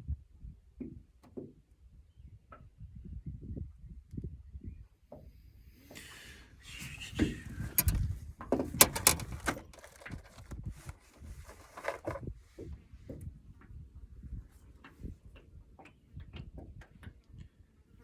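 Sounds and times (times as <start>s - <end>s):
handling rustling: 6.7s - 12.3s
sharp clicks and knocks: 7.2s - 10.6s.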